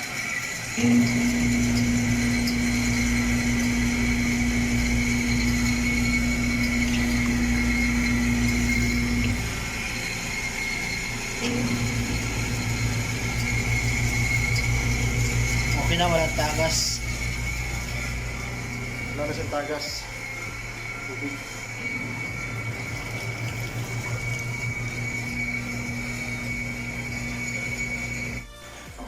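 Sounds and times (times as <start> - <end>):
washing machine motor humming: 0.0 - 29.0.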